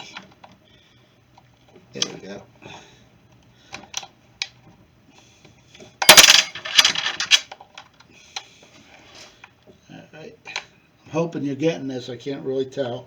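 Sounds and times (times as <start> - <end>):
metal tools clattering: 6.0 - 7.5.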